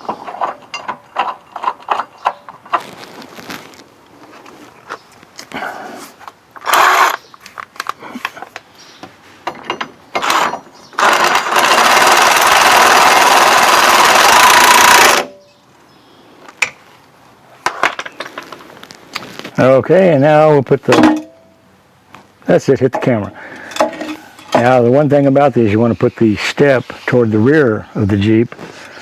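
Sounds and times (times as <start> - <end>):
tools and hardware clinking: 0.0 - 2.8, 9.4 - 11.5, 23.0 - 24.7
power tool running: 6.6 - 7.2, 10.2 - 15.3.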